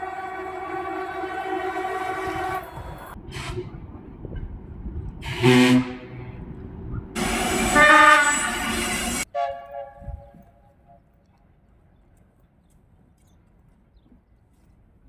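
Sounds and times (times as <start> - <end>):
locomotive air horn blasts: 0.0 - 3.8, 5.2 - 6.4, 7.2 - 10.5.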